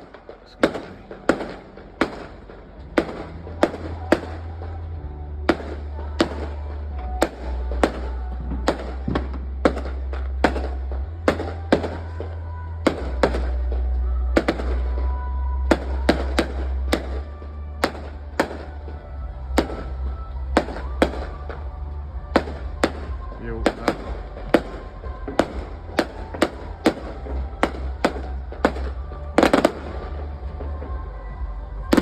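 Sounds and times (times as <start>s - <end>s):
fireworks bangs: 0.0s - 32.0s.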